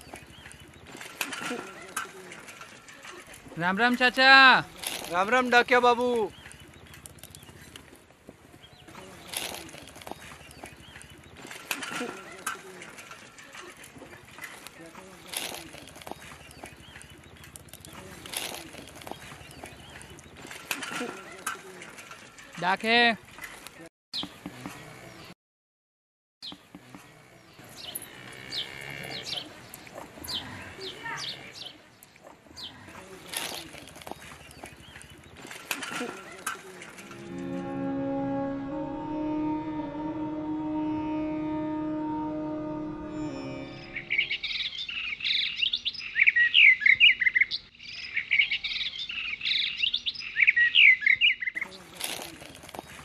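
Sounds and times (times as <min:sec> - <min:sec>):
birds chirping: 0:00.0 - 0:25.4, 0:26.4 - 0:42.2, 0:42.8 - 0:53.0
quiet rural background noise: 0:26.4 - 0:37.2.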